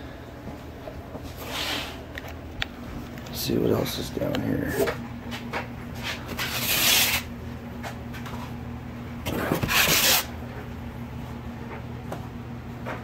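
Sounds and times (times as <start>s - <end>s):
cardboard rustling and scraping: 9.3s - 10.3s.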